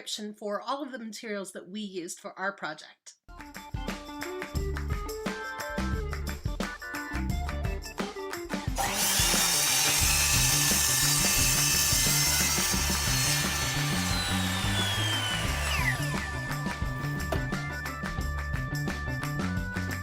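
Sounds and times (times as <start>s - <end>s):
power saw cutting: 8.7s - 17.8s
saw blade spinning down: 8.8s - 17.7s.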